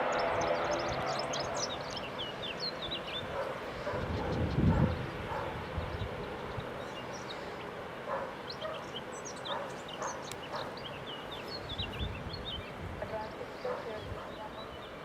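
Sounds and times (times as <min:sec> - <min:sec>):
small birds chirping: 0:00.0 - 0:15.0
steady outdoor hum: 0:00.0 - 0:15.0
dog barking: 0:03.3 - 0:05.7, 0:08.1 - 0:08.9, 0:09.5 - 0:10.8, 0:13.6 - 0:14.6.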